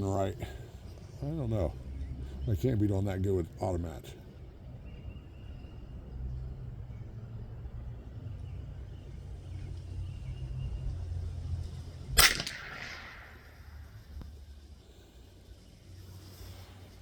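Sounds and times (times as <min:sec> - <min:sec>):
rifle shot with echo: 0:12.1 - 0:14.2.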